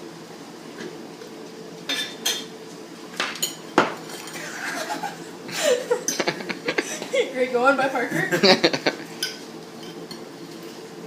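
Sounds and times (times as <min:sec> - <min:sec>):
steady low hum: 0:00.0 - 0:10.4
dishes and cutlery clinking: 0:03.2 - 0:04.5, 0:09.1 - 0:10.3.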